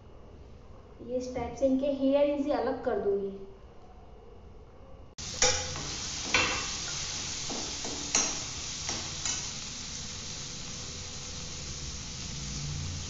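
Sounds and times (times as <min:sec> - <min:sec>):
beans sizzling in oil: 0:05.2 - 0:13.0
spatula knocking and scraping pan: 0:05.3 - 0:09.5.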